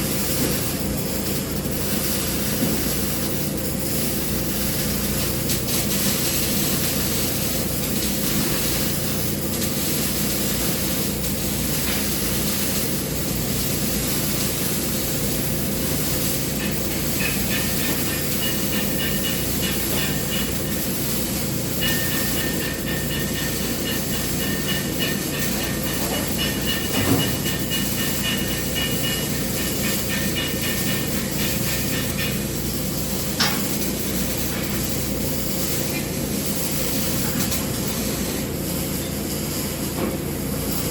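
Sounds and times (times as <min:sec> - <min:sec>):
high pulsing buzz: 0:00.0 - 0:38.0
machine hum: 0:00.0 - 0:38.6
welding arc hissing: 0:00.0 - 0:40.9.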